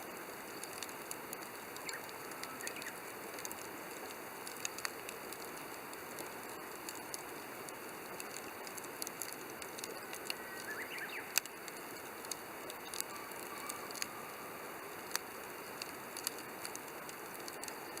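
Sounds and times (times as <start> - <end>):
campfire crackling: 0.0 - 18.0
sharp pops of fire: 0.0 - 18.0.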